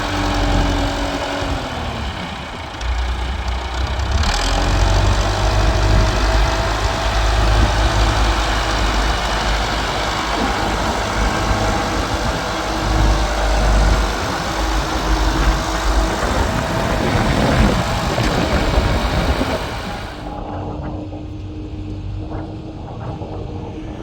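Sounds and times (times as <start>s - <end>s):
tractor engine rumbling: 0.0s - 20.5s.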